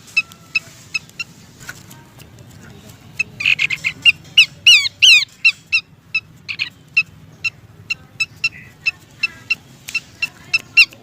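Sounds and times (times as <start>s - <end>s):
bird sharp chip calls: 3.1s - 11.0s.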